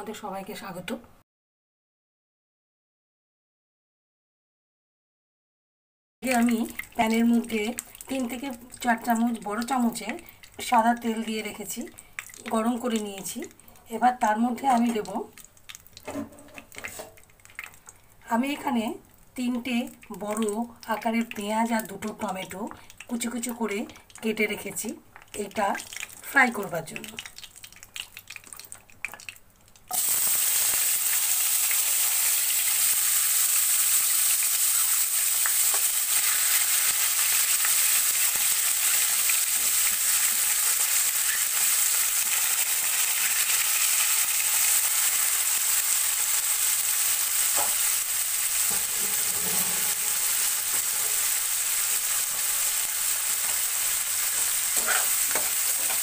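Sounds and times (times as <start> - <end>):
vegetables sizzling in hot oil: 29.9 - 56.0
spatula scraping pan: 48.6 - 51.4, 54.3 - 56.0.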